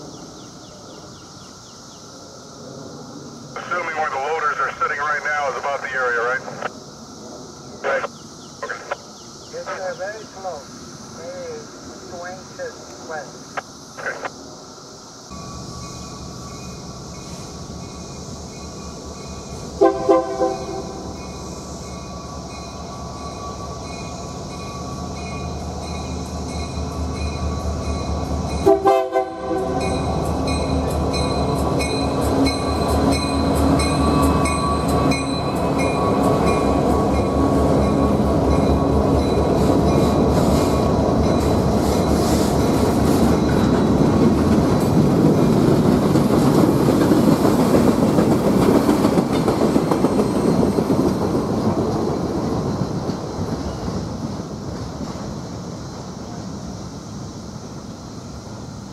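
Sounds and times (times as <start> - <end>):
train rumble: 0.0 - 58.9
wheels clicking on rails: 39.2 - 55.3.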